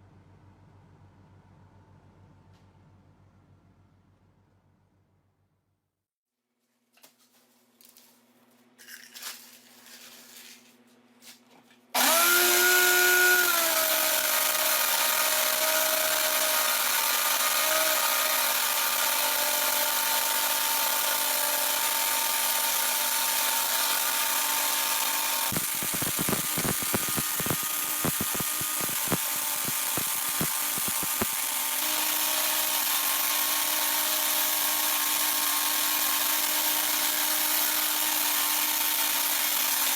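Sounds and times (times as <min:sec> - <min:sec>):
grinder motor whining: 0:12.0 - 0:39.9.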